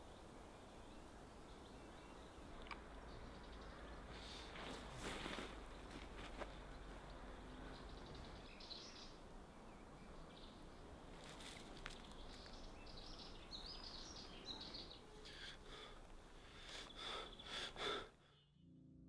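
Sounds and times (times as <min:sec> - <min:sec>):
faint bird chirps: 0:07.1 - 0:19.0.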